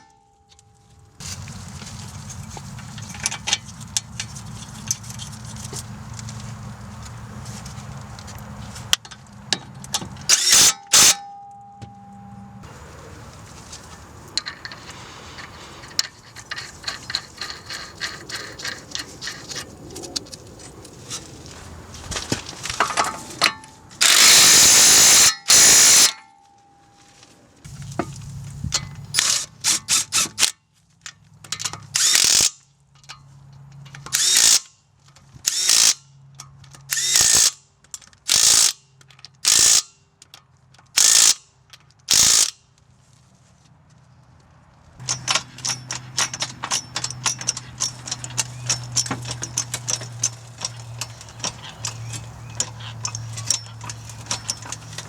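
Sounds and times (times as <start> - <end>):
impact wrench bursts: 10.3 - 11.4, 24.0 - 26.2, 31.9 - 32.6, 34.1 - 34.7, 35.5 - 36.0, 36.9 - 37.6, 38.3 - 38.8, 39.4 - 39.9, 41.0 - 41.4, 42.1 - 42.6
hand ratchet clicking: 24.0 - 26.2, 38.3 - 38.8, 39.4 - 39.9, 41.0 - 41.4, 42.1 - 42.6, 45.0 - 55.0.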